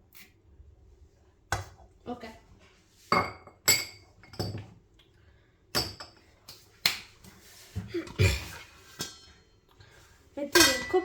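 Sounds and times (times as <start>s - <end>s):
cookware knocking and clinking: 10.5s - 11.0s
utensils clattering: 10.6s - 11.0s.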